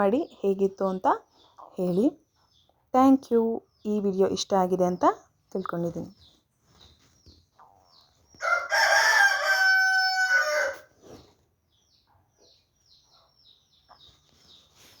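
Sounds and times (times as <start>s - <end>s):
small birds chirping: 0.0s - 15.0s
rooster crowing: 8.4s - 10.9s.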